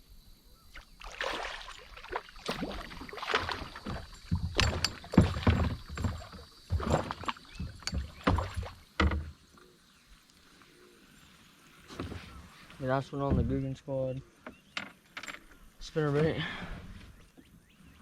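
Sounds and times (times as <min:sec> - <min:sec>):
water splashing and thrashing: 0:00.7 - 0:09.4.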